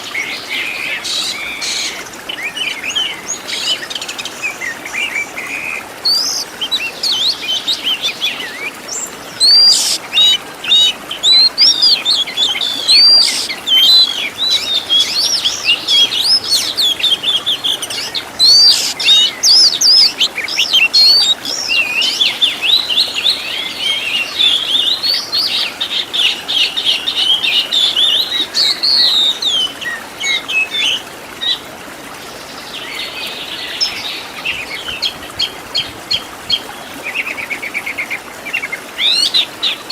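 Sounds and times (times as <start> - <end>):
bird singing whistles and chirps: 6.0 - 22.9.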